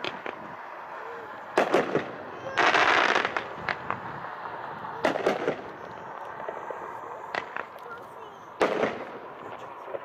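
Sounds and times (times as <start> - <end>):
aerial firework shells bursting: 1.5 - 7.9, 8.5 - 10.0.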